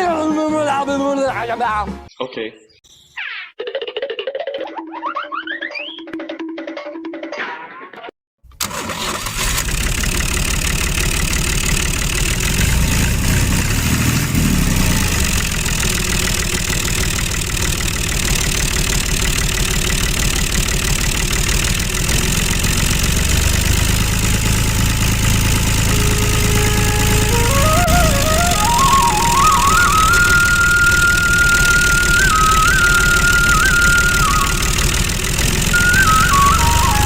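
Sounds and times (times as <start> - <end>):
small engine rattling: 8.5 - 37.0.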